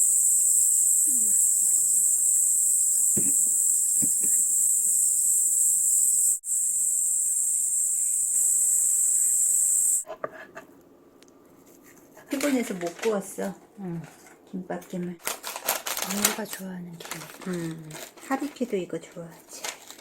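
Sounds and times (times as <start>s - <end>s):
high-pitched insect chorus: 0.0s - 10.0s.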